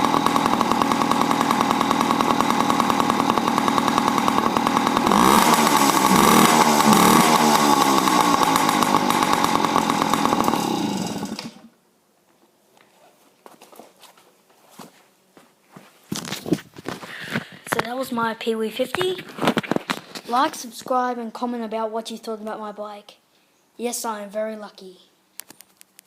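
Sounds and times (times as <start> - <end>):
two-stroke engine puttering and revving: 0.0 - 11.7.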